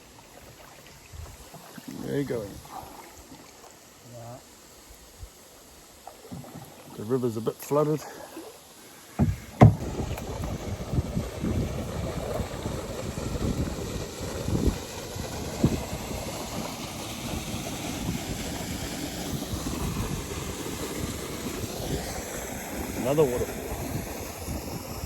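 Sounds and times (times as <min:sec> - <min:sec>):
soft thumps: 0:09.1 - 0:10.6
sharp knock: 0:09.2 - 0:10.0
wind buffeting microphone: 0:09.2 - 0:25.0.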